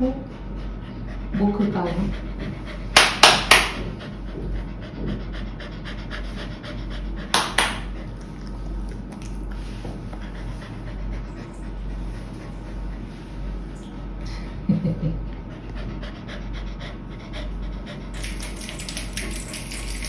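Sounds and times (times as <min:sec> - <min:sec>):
dog panting: 0:00.0 - 0:03.0, 0:03.8 - 0:08.8, 0:09.5 - 0:13.7, 0:15.2 - 0:20.0.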